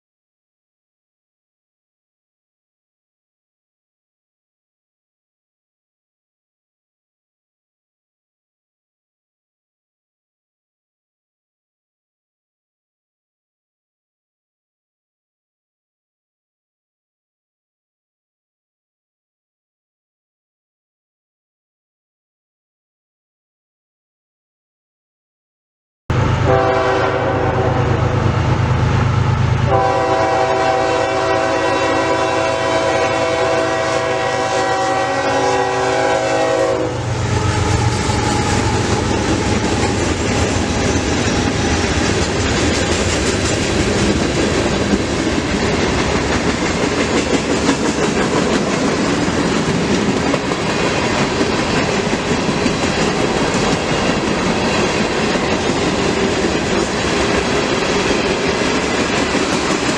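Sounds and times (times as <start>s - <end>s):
diesel locomotive engine rumble: 26.1s - 59.9s
multi-note train air horn: 26.4s - 28.2s, 29.7s - 40.0s
train wheels clattering on rails: 37.6s - 59.9s.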